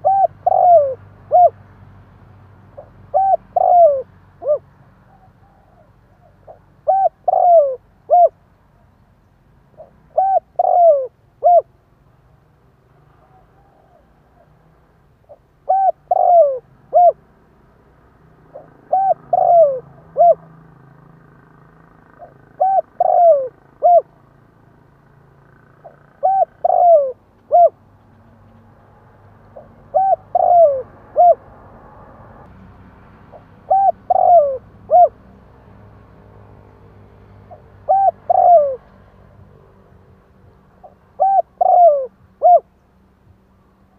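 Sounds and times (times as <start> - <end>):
dove cooing: 0.0 - 1.6, 2.7 - 8.4, 9.7 - 11.8, 13.2 - 14.6, 15.3 - 17.2, 18.5 - 20.6, 22.2 - 24.1, 25.8 - 28.7, 29.3 - 31.5, 33.3 - 35.2, 37.4 - 39.0, 40.8 - 42.8.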